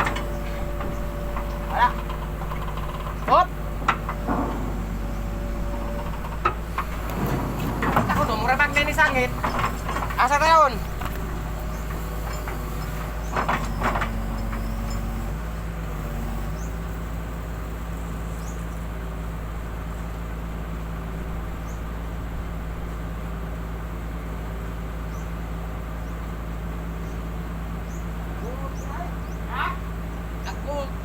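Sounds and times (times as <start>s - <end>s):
short knocks: 0.0s - 15.3s
engine humming: 0.0s - 31.0s.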